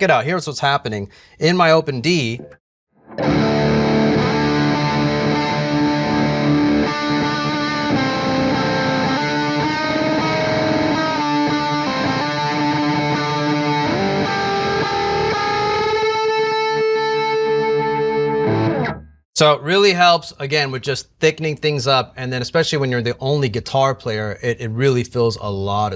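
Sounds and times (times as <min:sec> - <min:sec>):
electric guitar droning lead line: 0:03.1 - 0:19.1.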